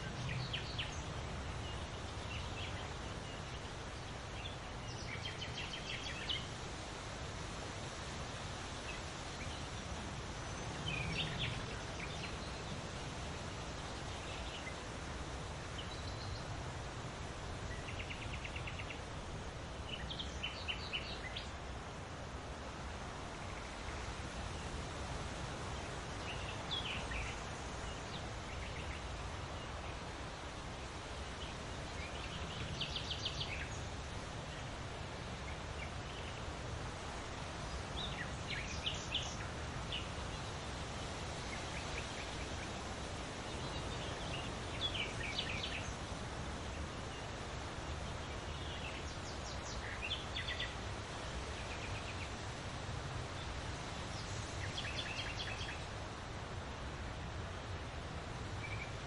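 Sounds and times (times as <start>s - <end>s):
birds singing: 0.0s - 6.6s, 8.9s - 16.6s, 31.0s - 34.7s, 37.6s - 46.2s, 48.0s - 52.4s, 53.3s - 55.9s
background hiss: 0.0s - 59.0s.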